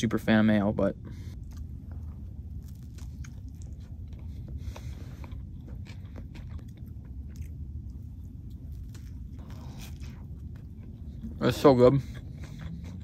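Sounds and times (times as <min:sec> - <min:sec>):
steady low rumble: 0:00.0 - 0:13.0
person biting and chewing bread: 0:01.3 - 0:11.4.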